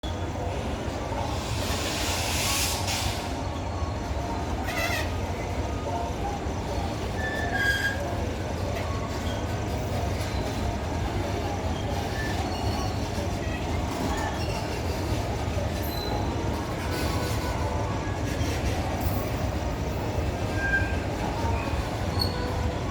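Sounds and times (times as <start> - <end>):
freight train wheels rumbling: 0.0 - 22.9
high-pitched wheel squeals: 7.0 - 8.2, 20.5 - 22.8.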